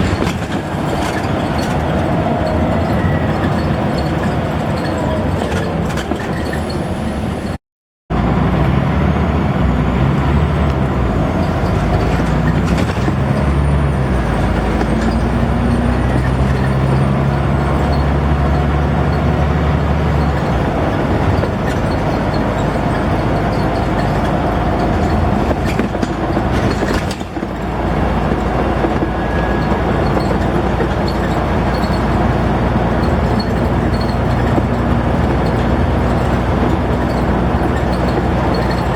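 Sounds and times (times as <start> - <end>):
bus diesel engine under load: 0.0 - 38.9.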